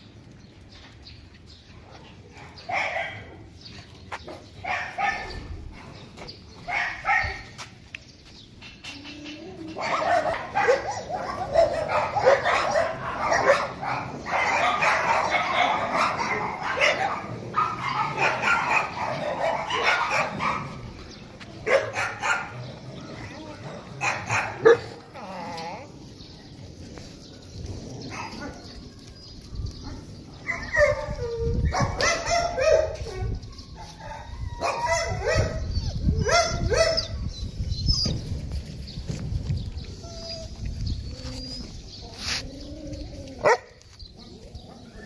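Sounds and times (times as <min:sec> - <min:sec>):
many dogs barking: 0:02.0 - 0:03.7, 0:04.6 - 0:05.6, 0:06.6 - 0:07.6, 0:09.6 - 0:25.9, 0:27.9 - 0:28.9, 0:29.8 - 0:37.4, 0:42.3 - 0:45.0.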